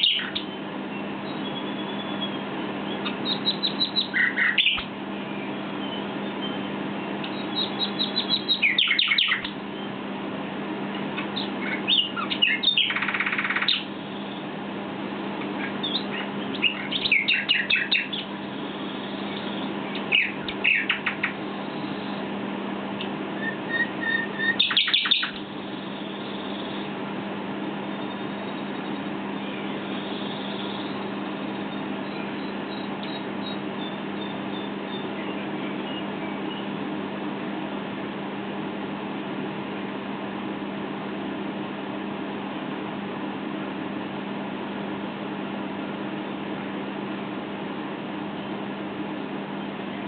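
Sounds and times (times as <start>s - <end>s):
nightingale singing trills: 0.0s - 10.0s, 11.1s - 14.5s, 15.6s - 22.3s, 23.0s - 27.0s, 27.8s - 36.8s
steady low hum: 0.0s - 50.0s.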